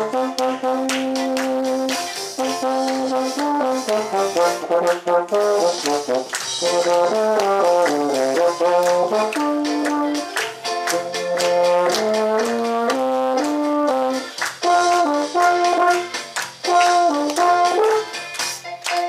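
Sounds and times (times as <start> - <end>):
euphonium playing a gospel melody: 0.0 - 18.4
sharp percussive strokes: 0.3 - 19.0.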